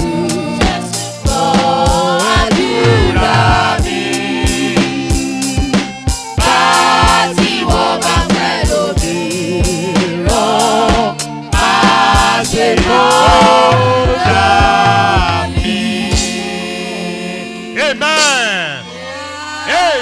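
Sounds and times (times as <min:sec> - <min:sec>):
band with drum beat: 0:00.0 - 0:16.3
group singing gospel song: 0:00.0 - 0:20.0.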